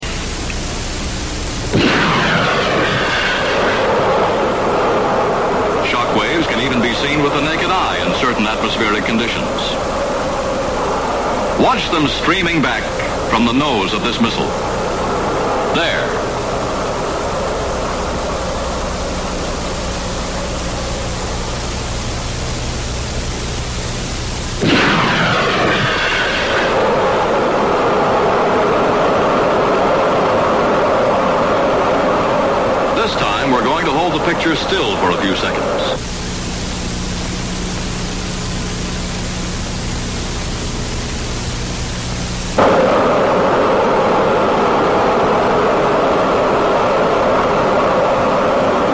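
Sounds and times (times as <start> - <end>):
faint low hum: 0.0 - 48.9
film soundtrack hiss: 0.0 - 48.9
wind tunnel air rushing: 1.7 - 8.7, 9.4 - 21.8, 24.6 - 36.0, 42.6 - 48.9.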